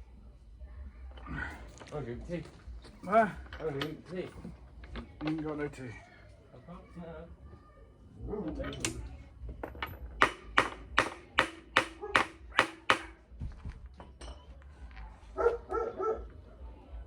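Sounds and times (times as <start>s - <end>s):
metal tool tapping on metal: 8.5s - 13.2s.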